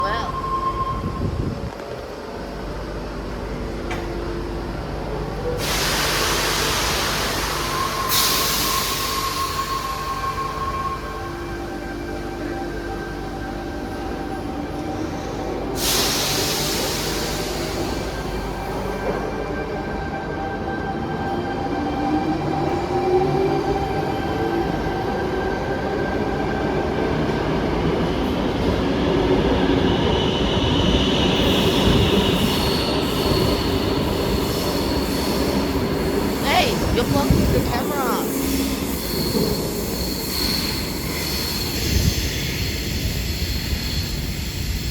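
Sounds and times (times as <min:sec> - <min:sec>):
electric train rumble: 0:00.0 - 0:44.9
loud hiss: 0:05.6 - 0:10.0.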